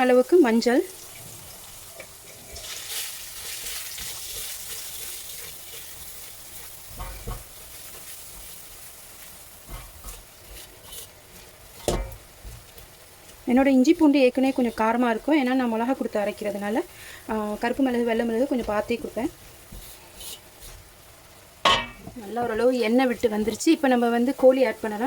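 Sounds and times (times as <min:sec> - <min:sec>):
food sizzling in hot oil: 0:00.0 - 0:25.0
spatula scraping a pan: 0:01.1 - 0:21.1
utensil knocking against pan: 0:11.8 - 0:12.3, 0:21.6 - 0:22.6.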